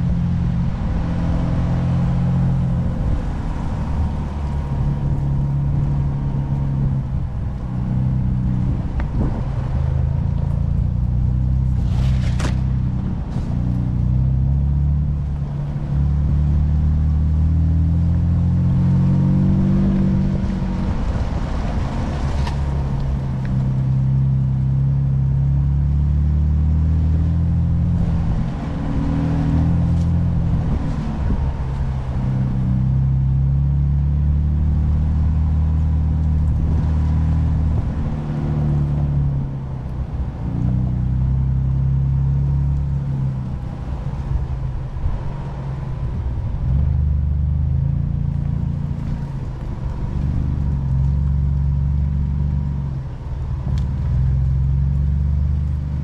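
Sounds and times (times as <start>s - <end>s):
engine under light throttle: 0.0s - 56.0s.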